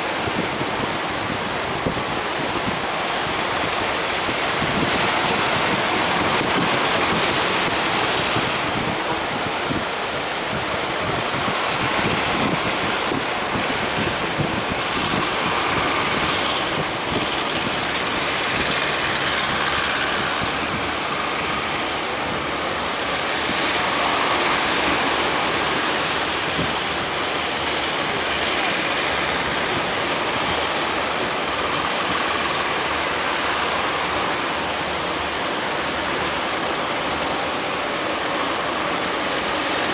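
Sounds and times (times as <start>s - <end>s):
waves breaking: 0.0s - 39.9s
wind on microphone: 0.0s - 39.9s.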